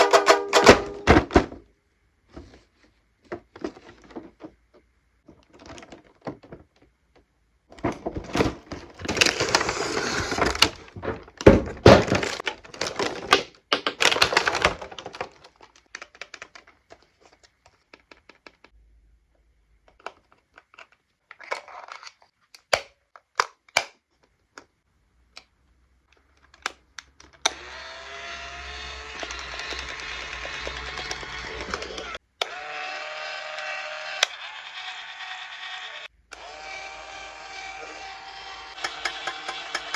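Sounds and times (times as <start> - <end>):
sharp knocks and cracks: 0.0 - 1.6, 38.8 - 39.9.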